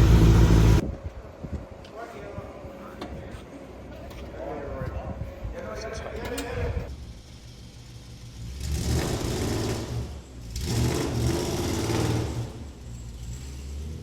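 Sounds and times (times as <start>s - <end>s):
car engine idling and revving: 0.0s - 0.8s, 6.9s - 14.0s.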